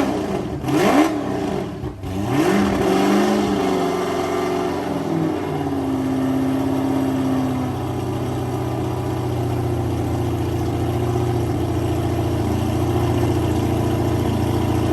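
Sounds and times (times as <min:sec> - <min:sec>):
powerboat engine idling: 0:04.0 - 0:14.9.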